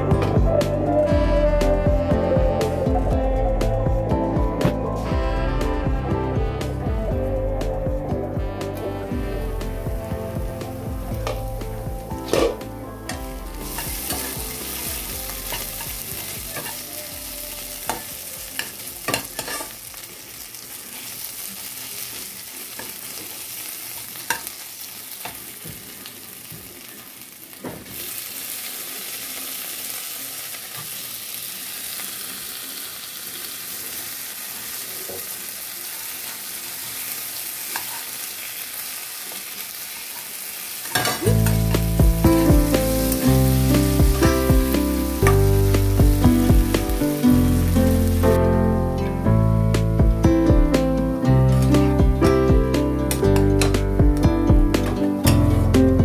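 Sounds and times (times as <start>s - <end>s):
background music: 0.0s - 20.0s, 41.2s - 56.0s
onions sizzling in oil: 8.4s - 48.5s
spatula scraping and tapping pan: 12.2s - 14.4s, 17.9s - 19.7s.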